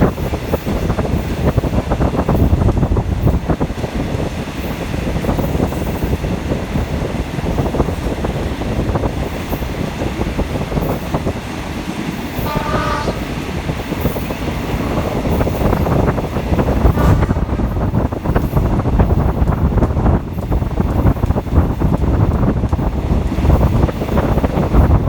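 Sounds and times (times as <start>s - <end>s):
train rumbling: 0.0s - 25.0s
wheels clattering on rail joints: 0.0s - 25.0s
train horn: 12.4s - 13.6s, 16.8s - 18.1s.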